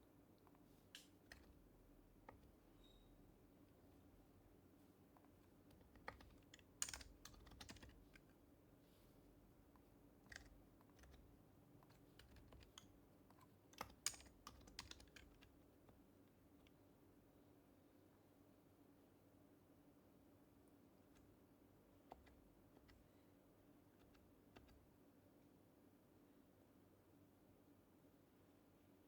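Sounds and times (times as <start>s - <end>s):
soft muted keyboard typing: 0.4s - 3.2s, 5.0s - 8.6s, 9.4s - 16.8s, 21.0s - 25.0s.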